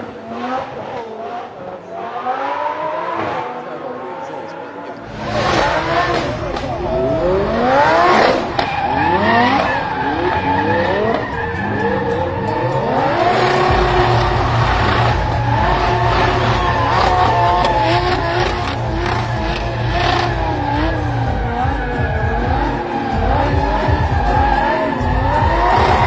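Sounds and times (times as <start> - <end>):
car engine revving: 0.0 - 26.0
tyres squealing: 4.1 - 26.0.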